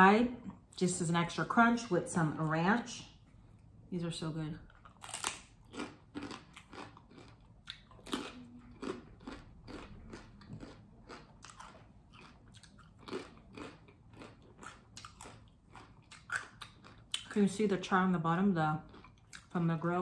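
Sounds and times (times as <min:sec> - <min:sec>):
crunching tortilla chip: 0:04.8 - 0:17.4.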